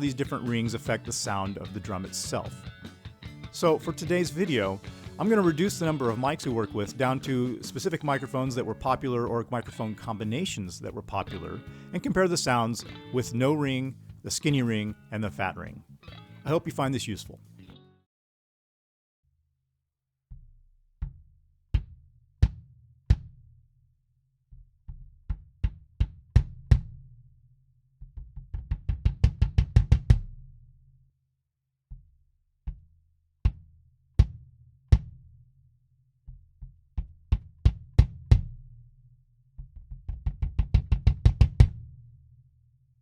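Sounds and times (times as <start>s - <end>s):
kick drum strokes: 28.0s - 30.4s, 39.6s - 41.9s.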